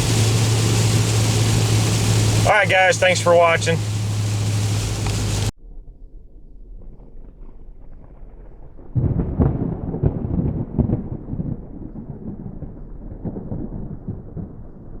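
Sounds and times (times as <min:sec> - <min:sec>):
car exhaust deep rumble: 0:00.0 - 0:05.5.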